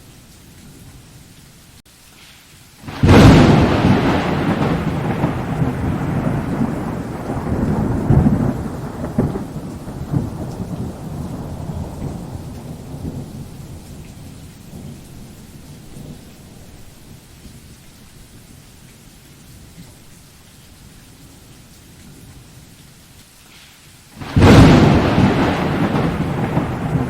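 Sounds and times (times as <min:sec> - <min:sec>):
steady rain: 0:00.0 - 0:27.0
rumbling thunder: 0:02.9 - 0:17.2, 0:24.2 - 0:27.0.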